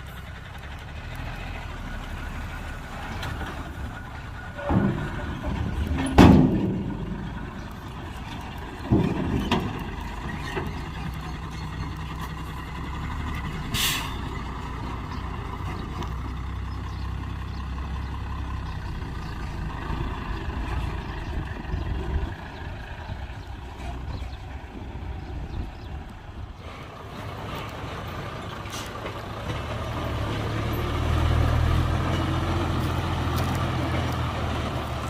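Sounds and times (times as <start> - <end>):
diesel truck engine running: 0.0 - 35.0
loud metal clanks: 4.5 - 11.0.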